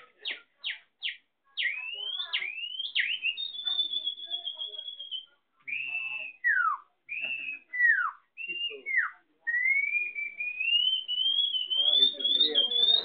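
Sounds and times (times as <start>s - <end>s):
person whistling bird call: 11.2s - 13.0s.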